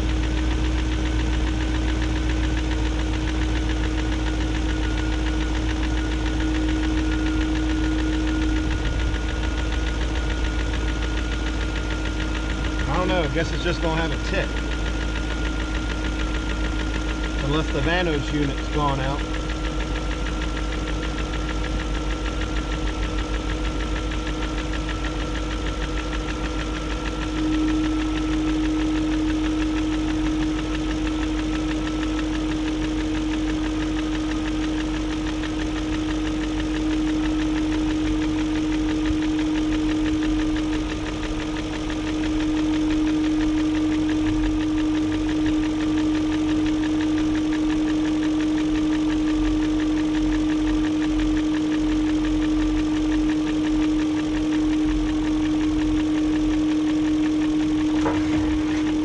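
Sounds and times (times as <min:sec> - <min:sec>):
car engine idling with tick: 0:00.0 - 0:59.0
steady hum: 0:00.0 - 0:59.0.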